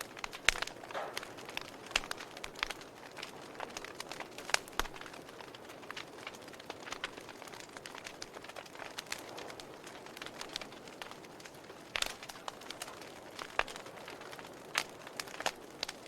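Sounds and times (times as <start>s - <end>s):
fire crackling and popping: 0.0s - 16.0s
fire hissing: 0.0s - 16.0s.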